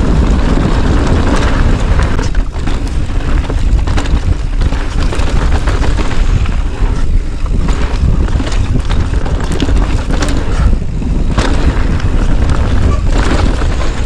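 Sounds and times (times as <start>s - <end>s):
rattles and knocks over rough ground: 0.0s - 14.0s
wind buffeting microphone: 0.0s - 14.0s.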